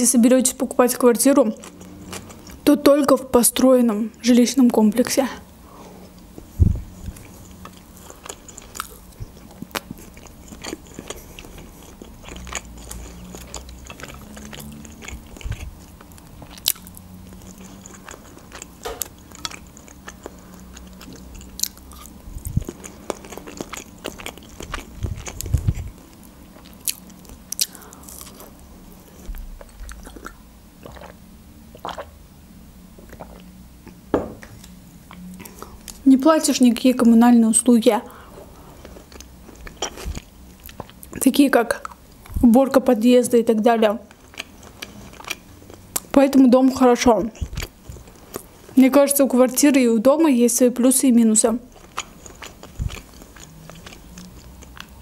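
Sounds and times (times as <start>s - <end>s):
chewing and biting food: 1.4s - 2.7s, 6.4s - 32.1s, 38.8s - 41.2s, 44.1s - 46.2s, 47.2s - 48.8s, 51.6s - 55.0s.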